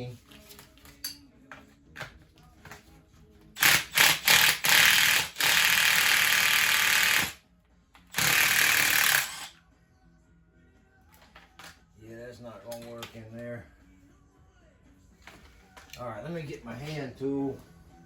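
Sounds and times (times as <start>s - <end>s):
cordless power driver running: 8.1s - 9.5s.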